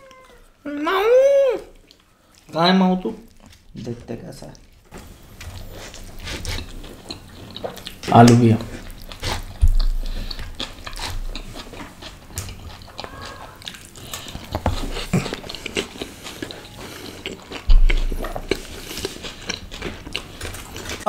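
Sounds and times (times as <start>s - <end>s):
wet chewing and mouth clicks: 0.0s - 21.0s
low thumps: 9.4s - 11.4s, 17.6s - 18.8s.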